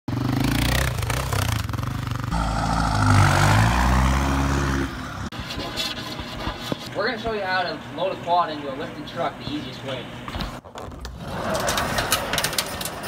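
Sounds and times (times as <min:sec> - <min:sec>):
vehicle engine revving: 0:00.1 - 0:05.3.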